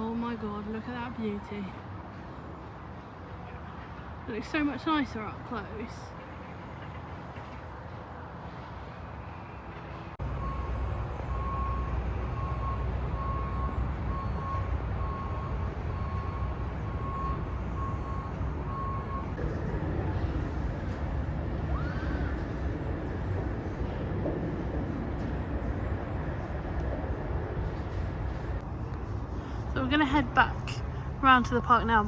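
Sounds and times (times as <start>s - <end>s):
heavy vehicle engine running: 0.0s - 32.0s
reversing warning beeper: 10.4s - 19.4s.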